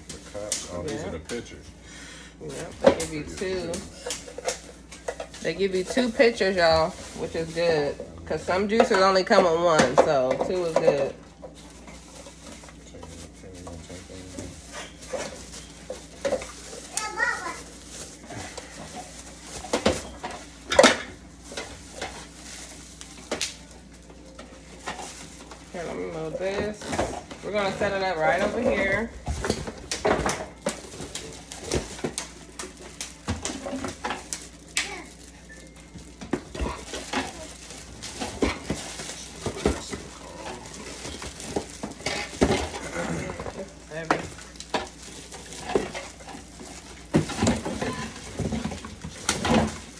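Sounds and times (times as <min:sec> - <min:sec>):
objects clattering on a table: 0:28.4 - 0:34.5, 0:40.8 - 0:49.9.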